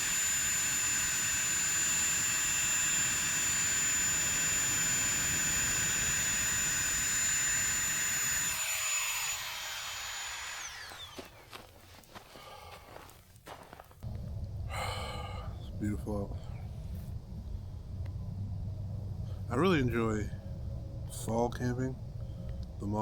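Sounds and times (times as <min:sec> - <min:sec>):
small motor whining: 0:00.0 - 0:11.7.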